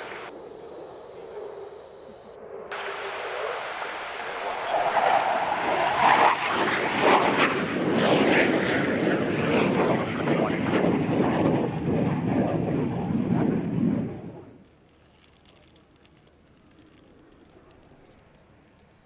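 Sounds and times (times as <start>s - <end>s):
aircraft engine passing: 0.0s - 14.6s.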